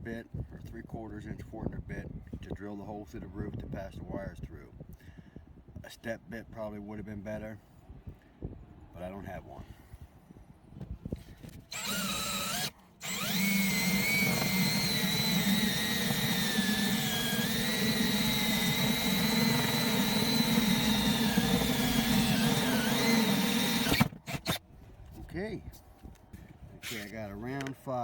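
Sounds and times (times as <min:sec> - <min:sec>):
power drill whining: 0:11.7 - 0:24.6.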